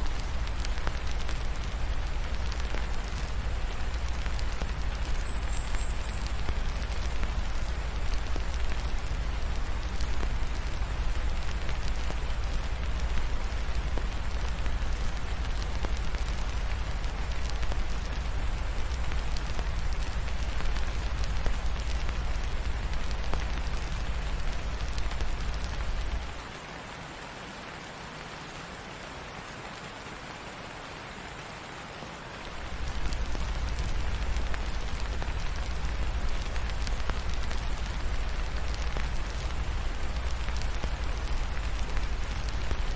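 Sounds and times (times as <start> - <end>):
steady rain hiss: 0.0 - 42.9.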